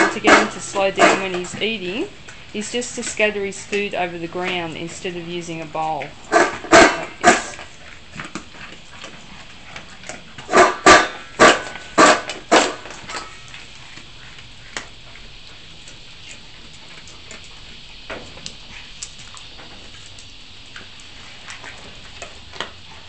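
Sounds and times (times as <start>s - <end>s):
dog eating dry food: 0.0s - 23.0s
loud noises from dog: 6.3s - 7.5s.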